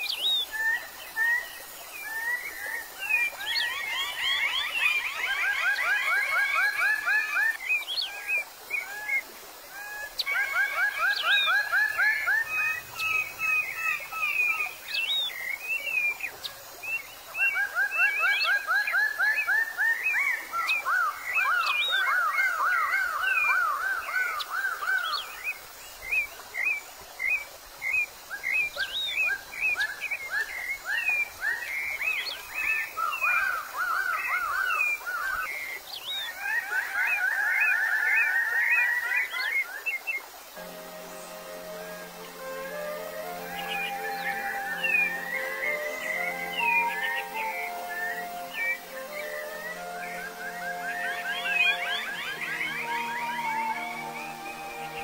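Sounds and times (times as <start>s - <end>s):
birds calling sweeping notes: 0.0s - 55.0s.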